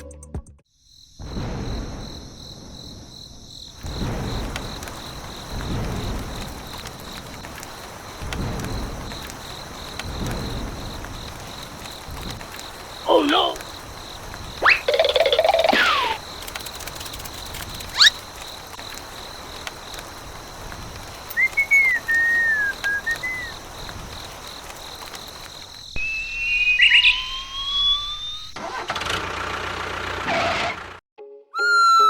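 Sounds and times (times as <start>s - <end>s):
slide whistle glide: 14.6s - 15.0s, 21.3s - 23.5s, 26.0s - 28.6s, 31.4s - 32.0s
whistle sound effects: 14.6s - 16.2s, 21.3s - 23.5s, 26.0s - 28.6s, 31.2s - 32.0s.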